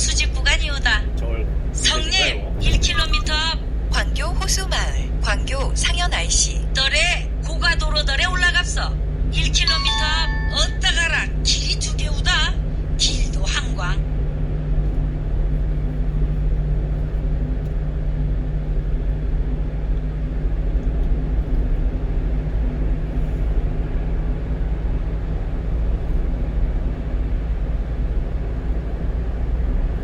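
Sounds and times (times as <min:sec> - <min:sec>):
truck engine drone: 0:00.0 - 0:15.7
road and tyre noise: 0:00.0 - 0:30.0.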